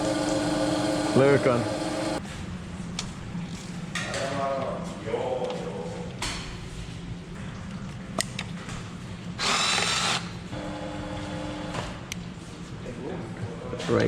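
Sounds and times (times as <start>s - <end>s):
handheld power tool whirring: 9.4s - 10.3s.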